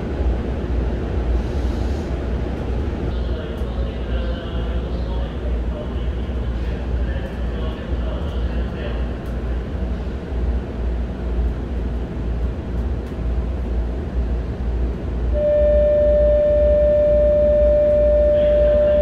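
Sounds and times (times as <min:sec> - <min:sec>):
low hum of train equipment: 0:00.0 - 0:19.0
steady electronic tone: 0:15.4 - 0:19.0.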